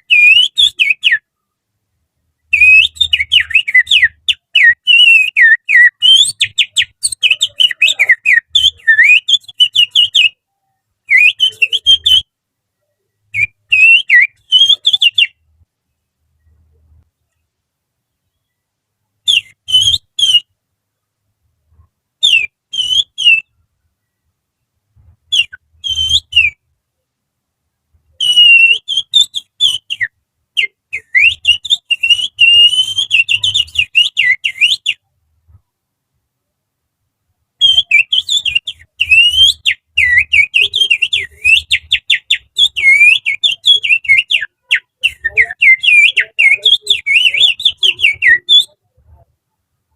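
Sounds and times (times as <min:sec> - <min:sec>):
finger whistling birdsong imitation: 0:00.0 - 0:01.3, 0:02.4 - 0:12.3, 0:13.0 - 0:15.4, 0:19.2 - 0:20.5, 0:22.2 - 0:23.6, 0:25.3 - 0:26.6, 0:28.1 - 0:35.1, 0:37.6 - 0:48.9.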